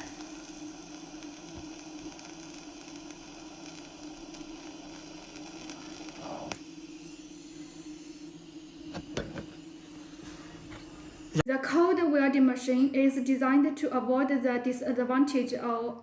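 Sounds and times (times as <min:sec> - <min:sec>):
welding arc hissing: 0:00.0 - 0:11.4.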